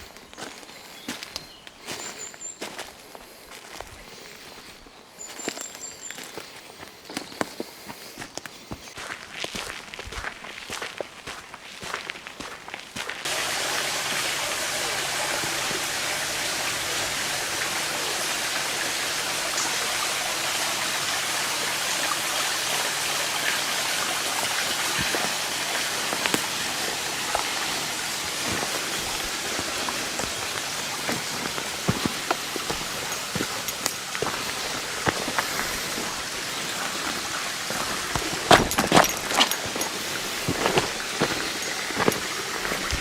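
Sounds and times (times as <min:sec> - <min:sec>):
dense hiss of falling water: 0:13.2 - 0:43.0.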